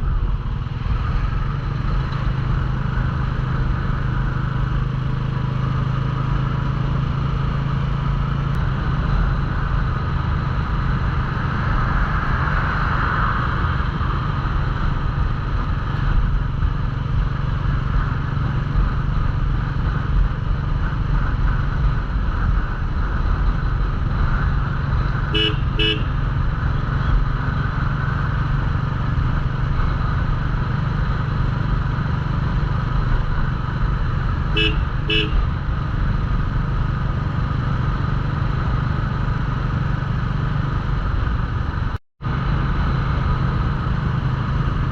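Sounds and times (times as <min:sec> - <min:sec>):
motorcycle engine running steadily: 0:00.0 - 0:12.1, 0:13.5 - 0:44.9
wind and road noise: 0:00.0 - 0:44.9
vehicle horn toots: 0:25.3 - 0:26.2, 0:34.5 - 0:35.5.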